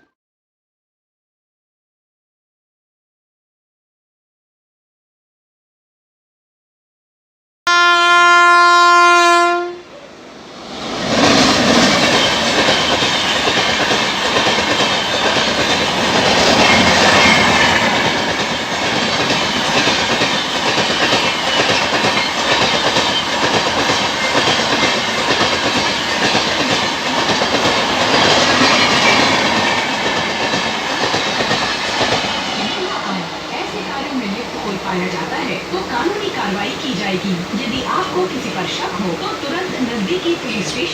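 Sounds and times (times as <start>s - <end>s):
train horn blast: 7.7s - 9.9s
train wheels on rail: 9.9s - 40.9s.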